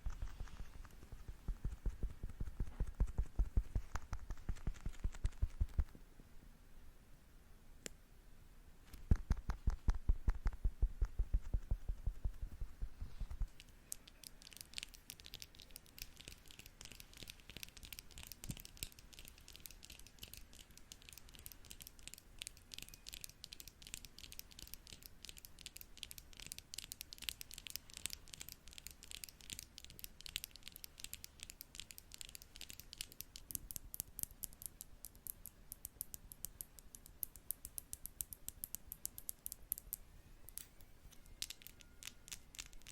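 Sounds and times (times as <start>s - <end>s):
brush tapping microphone: 0.0s - 5.9s, 8.9s - 13.8s.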